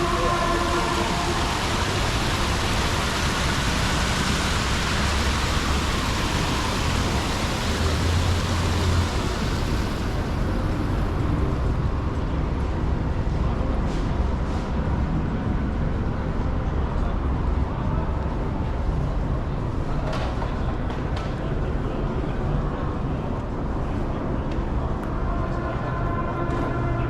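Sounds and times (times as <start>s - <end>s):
siren: 0.0s - 11.4s
rush of passing vehicles: 0.0s - 17.6s.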